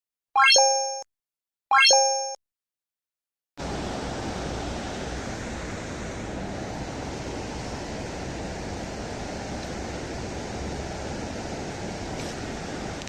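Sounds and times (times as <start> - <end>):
river water rushing: 3.6 - 13.0.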